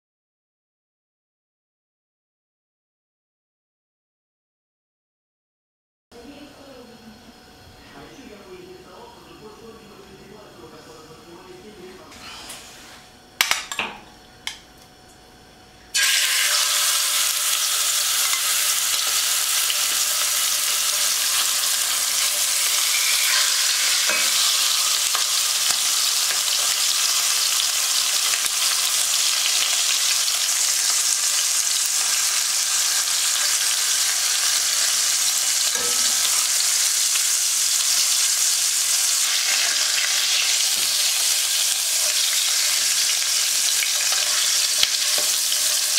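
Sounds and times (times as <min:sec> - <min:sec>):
chicken sizzling in oil: 0:15.9 - 0:45.9.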